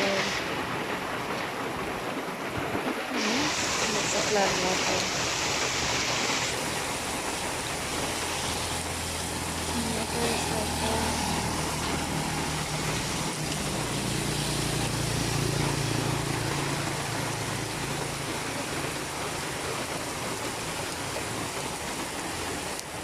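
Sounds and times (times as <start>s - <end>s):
rain hiss: 0.0s - 23.0s
vehicle engine running low: 8.2s - 21.4s.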